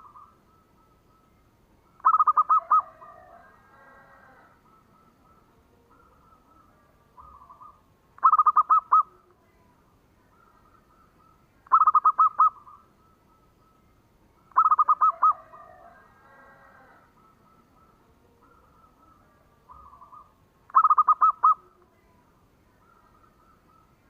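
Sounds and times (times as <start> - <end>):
dove cooing notes: 2.0 - 9.3, 10.3 - 13.5, 14.4 - 21.9
fainter doves cooing: 2.0 - 9.3, 10.3 - 13.8, 14.4 - 22.2.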